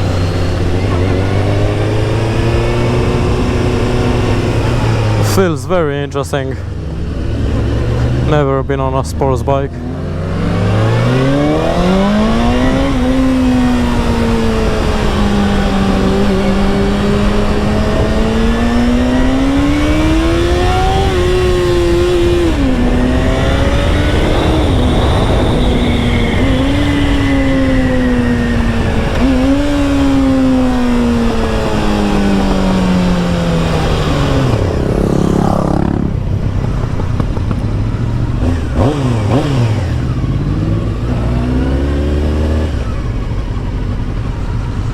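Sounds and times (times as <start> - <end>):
motorcycle engine accelerating: 0.0 - 44.9
wind rush: 10.1 - 41.2.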